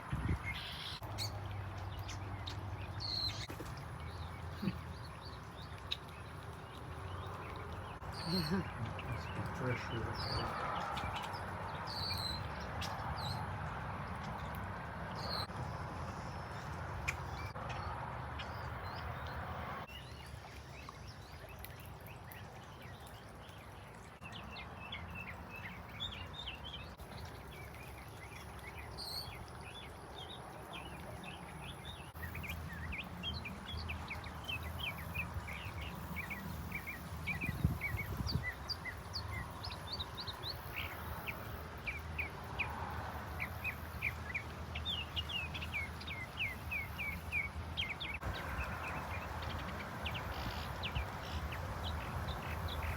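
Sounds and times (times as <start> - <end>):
wild birds chirping: 0.0 - 14.5, 15.1 - 52.9.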